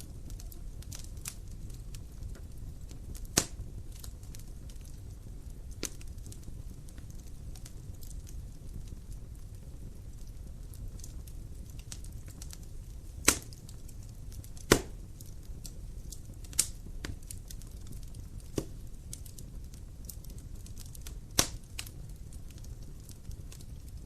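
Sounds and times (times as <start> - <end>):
firewood crackling: 0.0 - 24.0
flames rumbling: 0.0 - 24.0
loud wood pops: 3.4 - 3.6, 13.2 - 13.6, 14.6 - 15.0, 18.5 - 18.8, 21.4 - 21.6.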